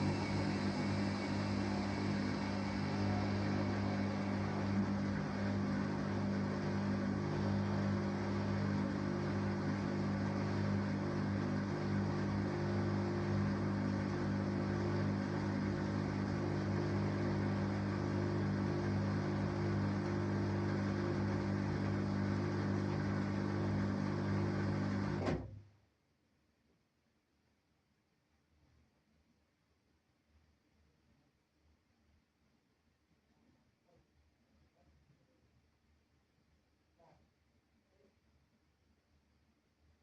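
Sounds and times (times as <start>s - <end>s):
washing machine humming: 0.0s - 25.6s.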